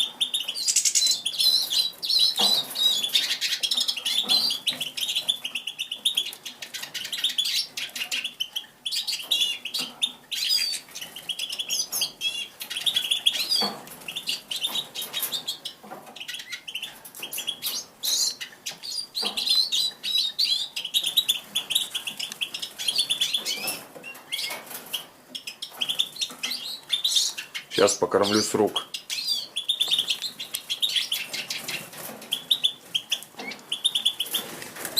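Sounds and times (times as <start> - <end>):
songbirds chirping: 0.0 - 34.9
wings flapping: 31.4 - 34.9.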